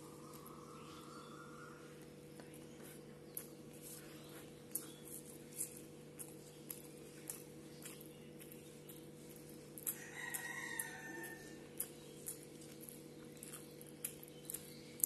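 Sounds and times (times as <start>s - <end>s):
low steady hum: 0.0s - 15.0s
wet chewing and lip smacks: 2.4s - 15.0s
rooster crowing: 9.9s - 11.7s.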